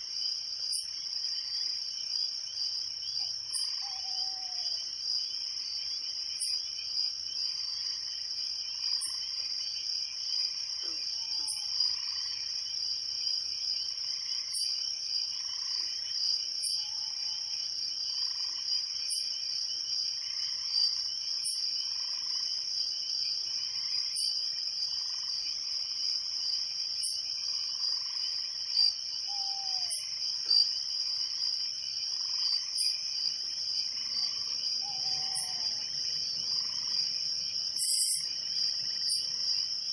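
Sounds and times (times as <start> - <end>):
crickets trilling: 0.0 - 39.9
frogs calling: 3.2 - 4.8, 10.8 - 12.6, 23.8 - 24.4, 27.0 - 39.4.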